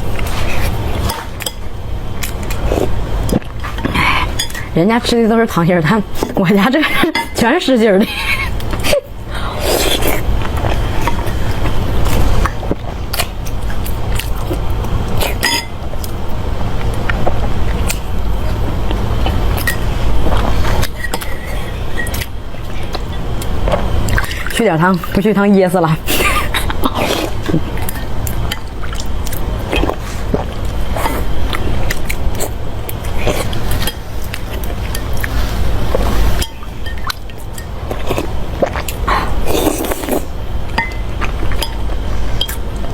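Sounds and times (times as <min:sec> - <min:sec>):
steady low hum: 0:00.0 - 0:42.9
person chewing: 0:02.1 - 0:04.8, 0:08.5 - 0:24.5, 0:26.2 - 0:42.9
chewing: 0:26.1 - 0:42.9.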